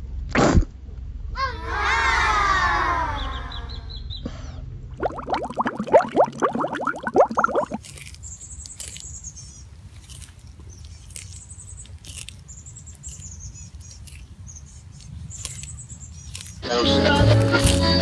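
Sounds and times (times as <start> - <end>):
tortoise chewing leafy greens: 6.8 - 18.0
faint crunches and clicks: 7.6 - 18.0.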